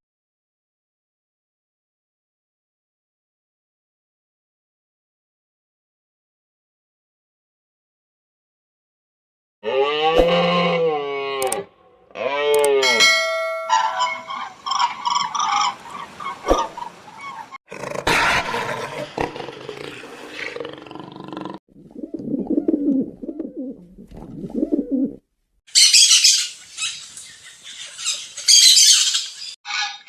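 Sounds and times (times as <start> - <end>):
birds chirping and peeping: 13.7 - 17.6, 25.7 - 30.0.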